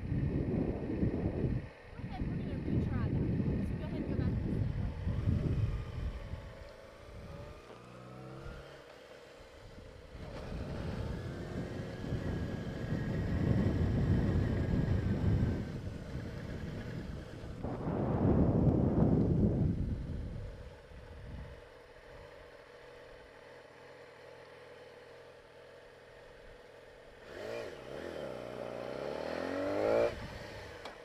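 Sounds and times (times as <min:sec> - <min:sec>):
wind rushing over microphone: 0:00.0 - 0:07.6, 0:09.6 - 0:21.7, 0:29.0 - 0:30.8
motorcycle engine revving: 0:00.0 - 0:31.0.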